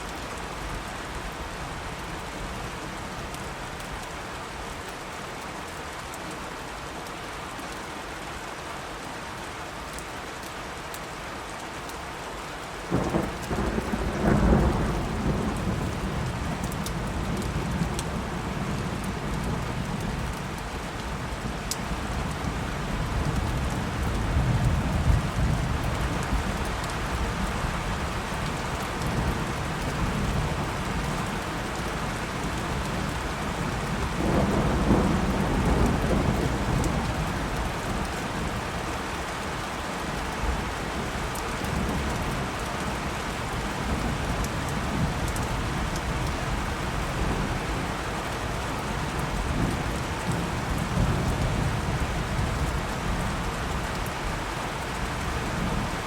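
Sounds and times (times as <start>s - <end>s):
steady rain falling: 0.0s - 56.0s
low rolling thunder: 12.9s - 20.4s, 32.0s - 38.5s.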